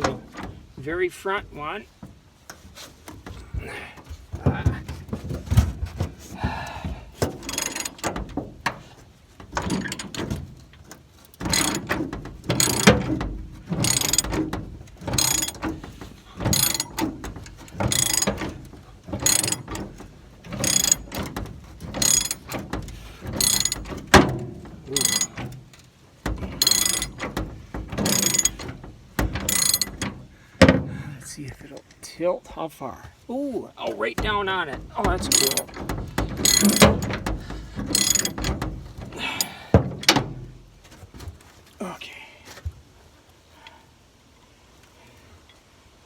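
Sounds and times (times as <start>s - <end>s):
ratchet wrench clicking: 7.4s - 8.1s, 11.5s - 11.9s, 12.5s - 13.0s, 13.8s - 14.4s, 15.1s - 15.7s, 16.5s - 18.5s, 19.2s - 19.8s, 20.5s - 21.3s, 21.9s - 22.6s, 23.4s - 24.3s, 24.9s - 25.4s, 26.5s - 27.3s, 28.0s - 28.7s, 29.4s - 30.0s, 35.2s - 37.1s, 37.8s - 38.6s.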